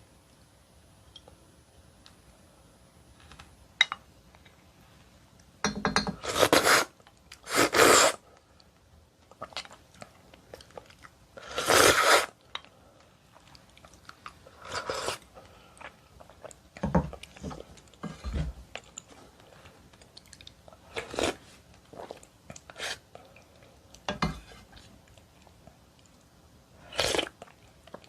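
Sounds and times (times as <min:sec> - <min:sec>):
faint dish and spoon sounds: 0:05.6 - 0:06.8, 0:24.1 - 0:24.9
chewing and mouth noises: 0:09.3 - 0:11.2, 0:18.7 - 0:24.0.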